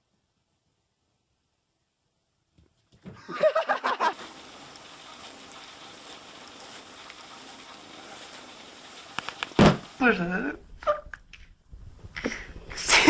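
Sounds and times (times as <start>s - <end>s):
steady hiss: 3.3s - 10.4s.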